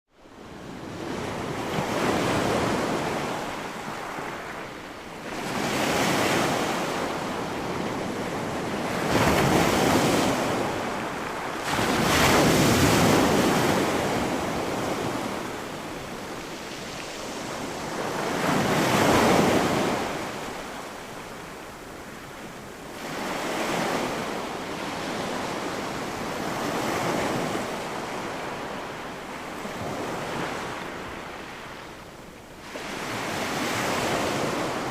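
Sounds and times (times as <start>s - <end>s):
sea waves breaking on beach: 0.4s - 34.9s.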